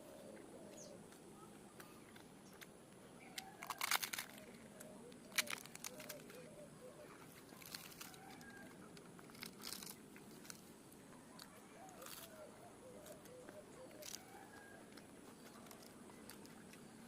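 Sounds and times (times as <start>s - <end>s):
fried bread crackling and tearing: 3.3s - 6.4s, 7.4s - 10.7s, 11.4s - 12.4s, 13.9s - 14.8s.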